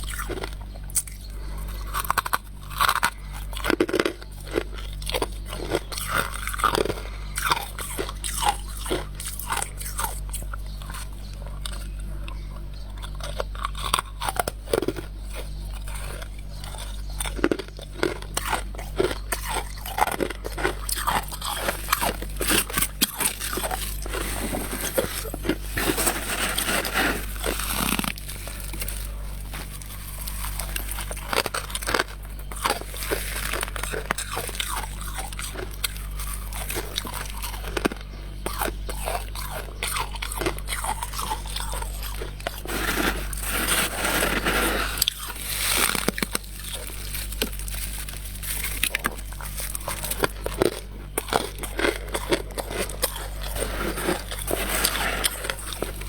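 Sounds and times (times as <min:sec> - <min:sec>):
crunchy chewing of frost: 0:00.0 - 0:56.0
steady low hum: 0:00.0 - 0:56.0.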